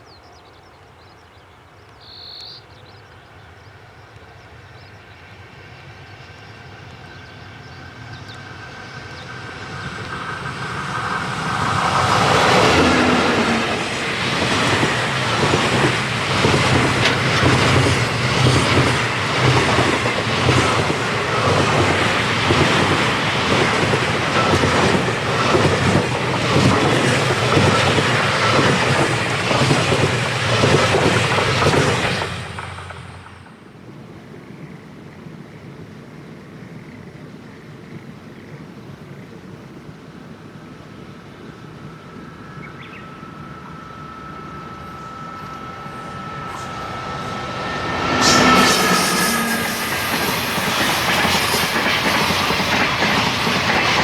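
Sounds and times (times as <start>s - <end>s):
freight train passing: 0.0s - 54.0s
wheel clatter over rail joints: 9.9s - 33.4s.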